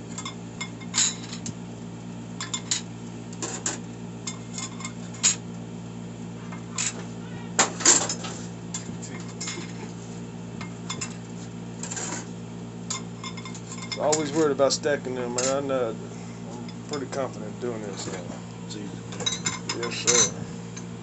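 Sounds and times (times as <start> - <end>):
metal parts and tools clinking: 19.1 - 20.4.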